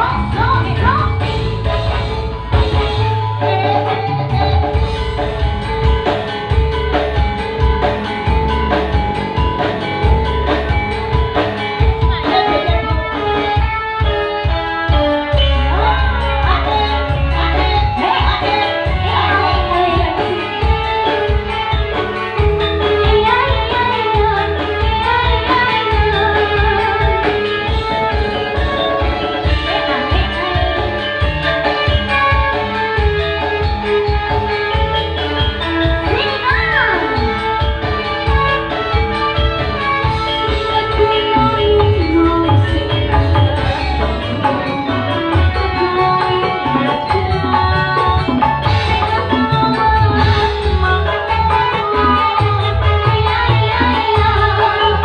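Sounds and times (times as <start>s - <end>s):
steady drum beat: 0.0s - 16.6s
band playing instrumental music: 0.0s - 55.0s.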